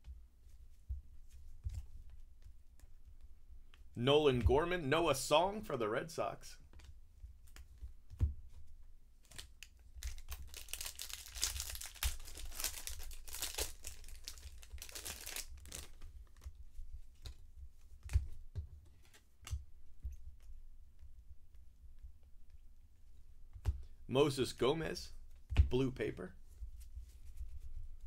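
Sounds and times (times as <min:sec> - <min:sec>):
foil wrapper tearing and crinkling: 0:09.4 - 0:16.0.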